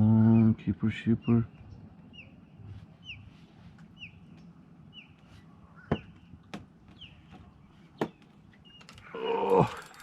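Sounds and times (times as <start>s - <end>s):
sharp knocks: 5.9s - 8.3s.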